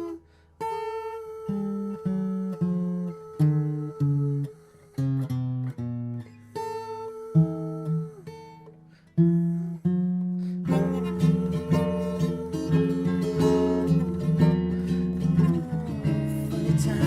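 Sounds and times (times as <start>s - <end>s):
acoustic guitar chords: 0.0s - 17.0s.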